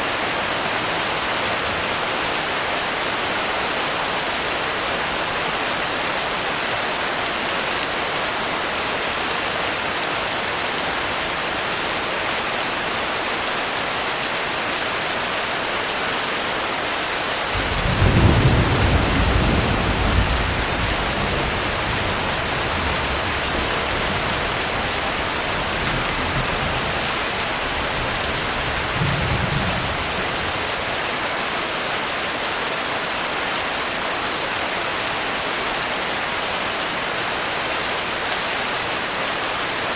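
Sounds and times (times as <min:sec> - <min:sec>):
heavy rain: 0:00.0 - 0:39.9
thunder rumbling: 0:17.6 - 0:30.6.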